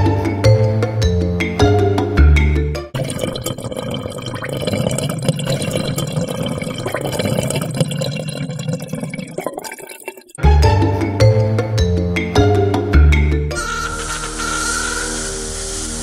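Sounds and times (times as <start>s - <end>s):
water draining gurgle: 3.0s - 10.4s.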